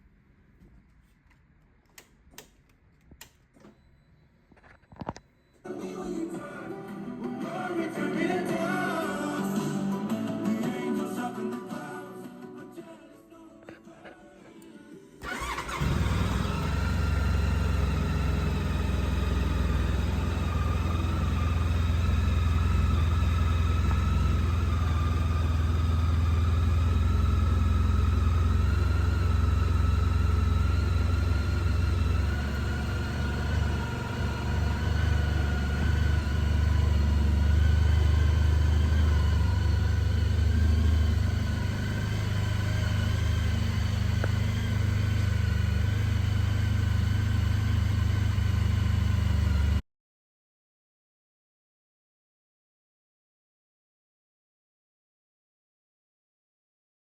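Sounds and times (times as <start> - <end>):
motorcycle engine idling: 15.2 - 49.8.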